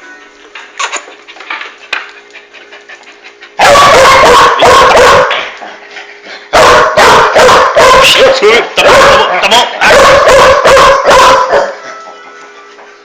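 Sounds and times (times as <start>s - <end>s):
faint music: 0.0s - 0.8s, 10.3s - 13.0s
dog barking loudly: 3.6s - 5.5s, 6.5s - 11.8s.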